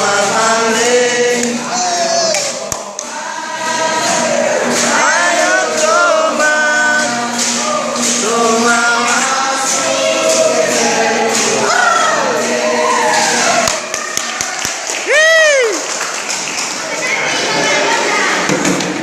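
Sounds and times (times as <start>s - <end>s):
group of voices singing: 0.0s - 15.1s
percussion strokes: 0.0s - 19.0s.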